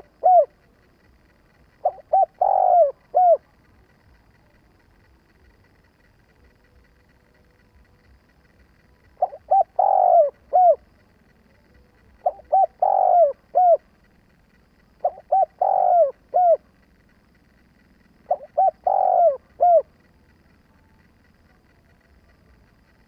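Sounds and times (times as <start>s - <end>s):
dove cooing: 0.0s - 4.0s, 8.0s - 20.6s.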